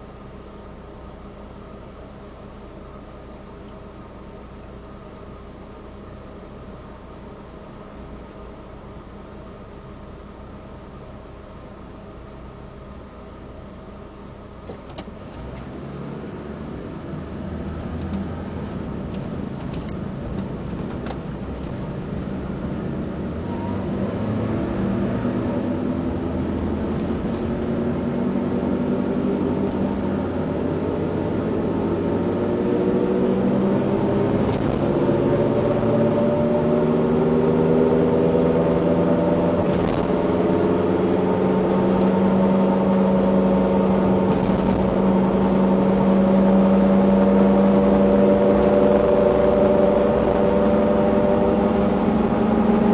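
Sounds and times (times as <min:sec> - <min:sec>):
car engine accelerating: 0:14.0 - 0:52.9.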